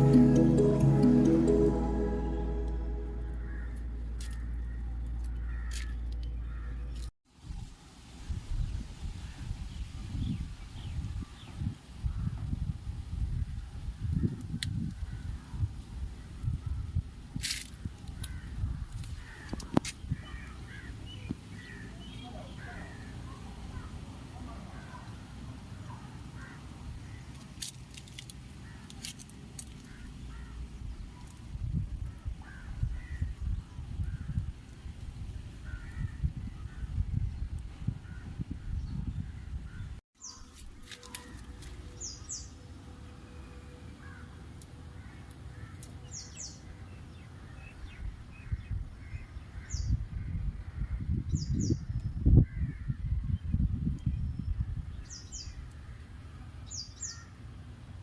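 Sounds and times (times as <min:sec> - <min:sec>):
wind rumble on microphone: 0:07.4 - 0:21.8, 0:29.9 - 0:40.0, 0:47.4 - 0:56.1.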